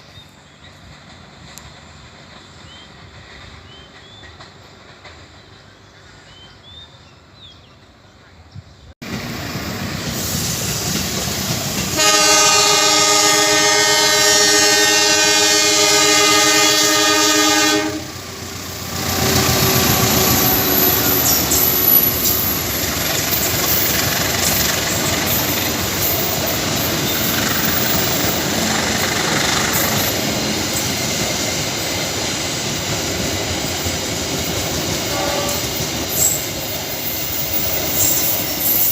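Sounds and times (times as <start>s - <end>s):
train wheels rumbling and clattering: 0.0s - 6.1s, 9.0s - 38.9s
train horn blast: 11.9s - 21.4s, 35.0s - 36.3s.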